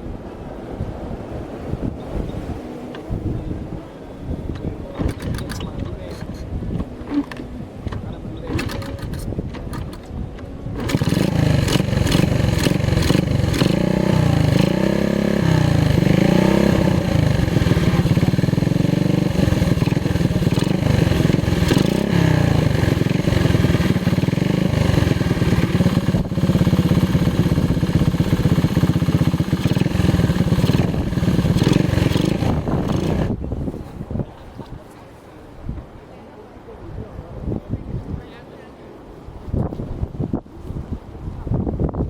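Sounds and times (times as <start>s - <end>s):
motorcycle engine running: 8.5s - 33.4s.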